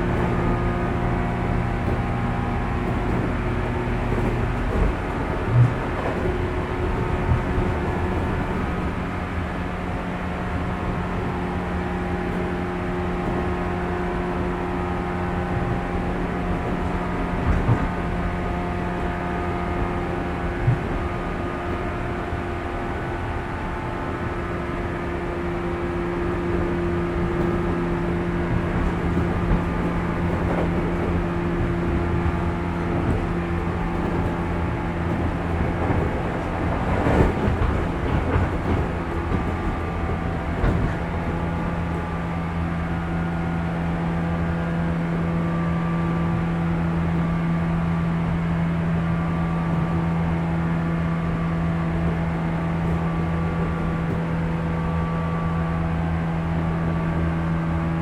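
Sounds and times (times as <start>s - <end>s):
wheels thumping over rail joints: 0.0s - 9.9s, 11.3s - 57.2s
traction motors humming: 0.0s - 58.0s
wheels rumbling on rail: 0.0s - 58.0s.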